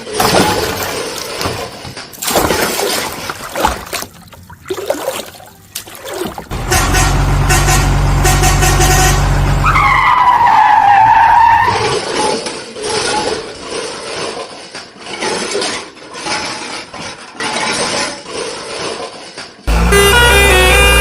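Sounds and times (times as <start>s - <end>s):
cartoon engine drone: 19.7s - 21.0s.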